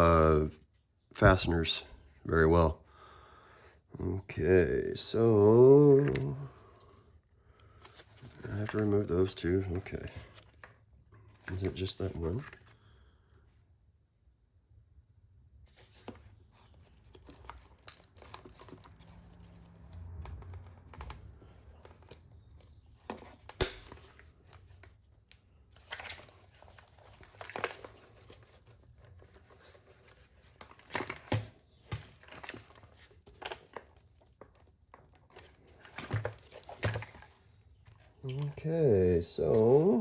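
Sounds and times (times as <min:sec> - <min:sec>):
plastic parts clicking and rattling: 0:15.8 - 0:38.7.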